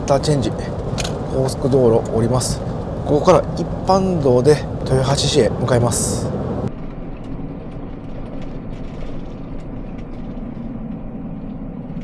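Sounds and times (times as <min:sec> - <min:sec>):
camper van engine rumble: 0:00.0 - 0:06.7
faint clicks: 0:00.0 - 0:06.7.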